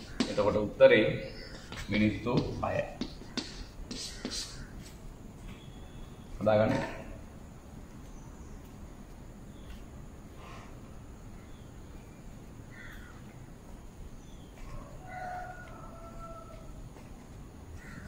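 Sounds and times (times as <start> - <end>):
faint bird calls: 0.0 - 6.5, 9.5 - 13.6, 14.2 - 16.9, 17.7 - 18.0
low background noise: 0.0 - 18.0.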